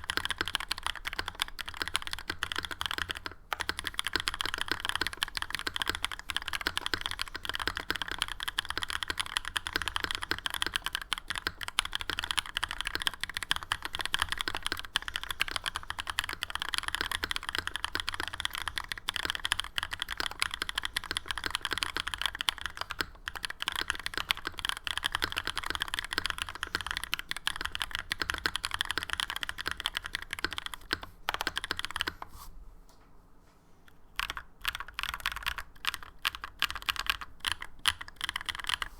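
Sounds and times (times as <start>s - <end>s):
fast mechanical keyboard typing: 0.0s - 32.2s, 34.2s - 38.9s.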